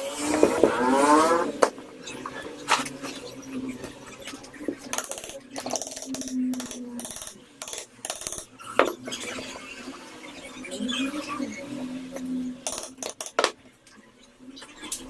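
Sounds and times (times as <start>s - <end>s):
metal tools clinking: 12.7s - 13.5s.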